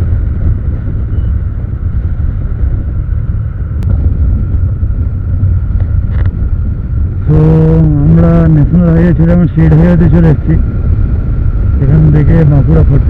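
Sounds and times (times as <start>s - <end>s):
motorcycle engine: 0.0s - 13.0s
wind rushing over microphone: 0.0s - 13.0s.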